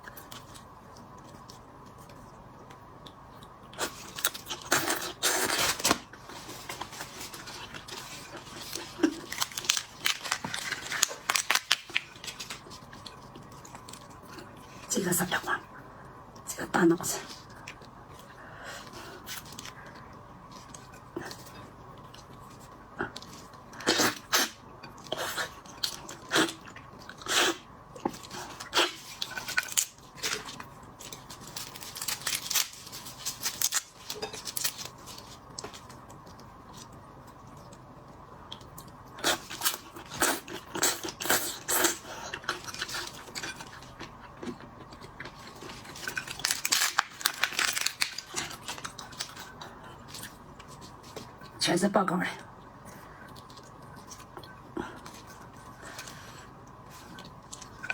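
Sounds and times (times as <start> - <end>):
shrimp shells cracking: 9.1 - 12.6, 45.9 - 49.4.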